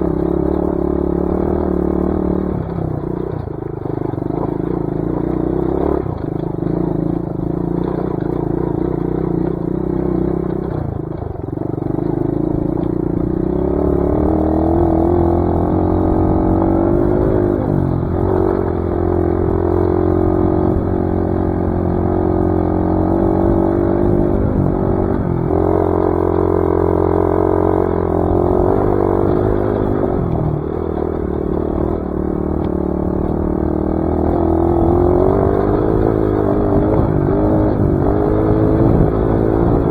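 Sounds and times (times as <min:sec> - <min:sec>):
dirt bike engine revving: 0:00.0 - 0:02.8, 0:12.0 - 0:39.9.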